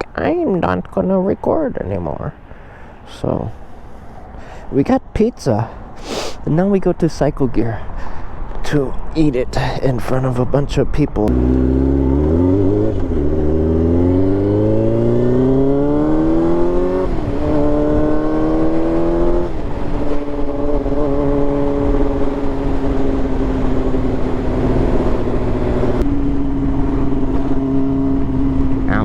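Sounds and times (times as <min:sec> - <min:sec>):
motorcycle engine accelerating: 0:11.3 - 0:29.0.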